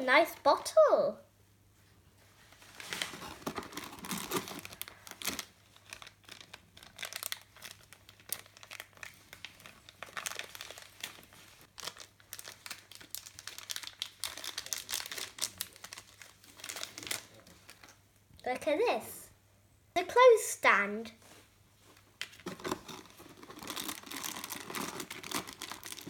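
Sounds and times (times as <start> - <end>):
plastic packaging crinkling and tearing: 2.6 - 18.0, 21.9 - 26.0.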